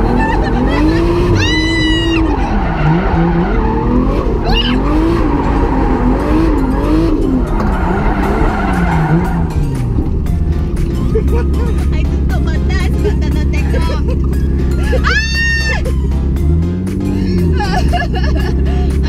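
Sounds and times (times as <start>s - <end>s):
car engine revving: 0.0s - 19.0s
tyres skidding: 0.0s - 19.0s.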